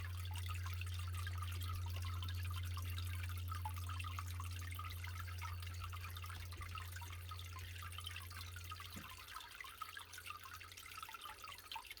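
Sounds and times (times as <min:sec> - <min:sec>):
low steady hum: 0:00.0 - 0:12.0
water dripping: 0:00.0 - 0:12.0.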